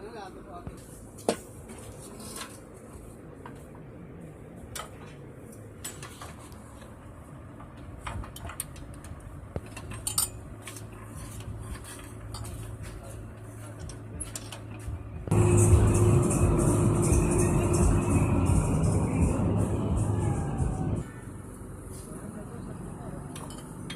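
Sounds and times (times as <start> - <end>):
metal parts clinking: 8.2 - 14.8, 23.3 - 23.9.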